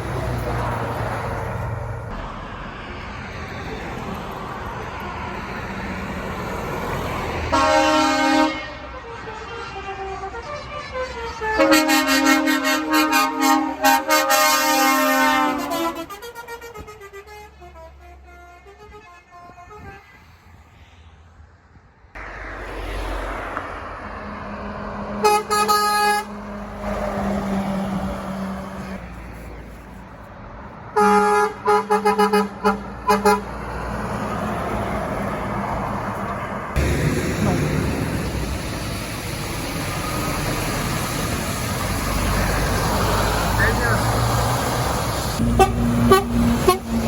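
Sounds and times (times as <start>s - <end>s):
road traffic noise: 0.0s - 47.0s
truck horns tooting: 7.4s - 20.2s, 24.6s - 29.0s, 30.9s - 35.0s, 39.7s - 47.0s.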